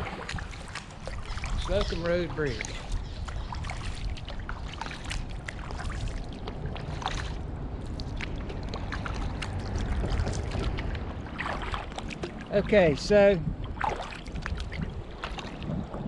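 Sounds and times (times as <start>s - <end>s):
paddle splashing in water: 0.0s - 16.0s
low rumble: 3.7s - 16.0s.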